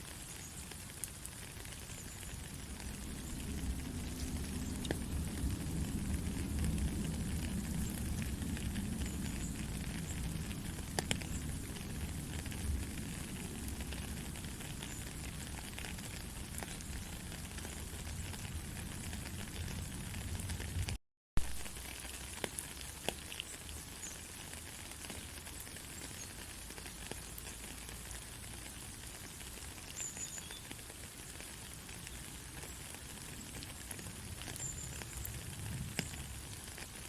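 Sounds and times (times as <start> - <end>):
gentle rain hiss: 0.0 - 37.0
low rumble: 2.8 - 14.4.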